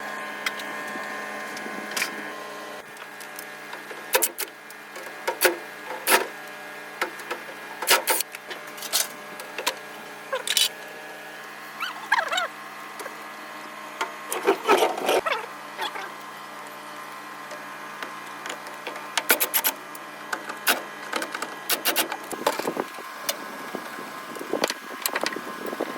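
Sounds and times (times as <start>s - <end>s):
wavering squeak: 11.8s - 12.5s
steady hum: 20.4s - 25.9s.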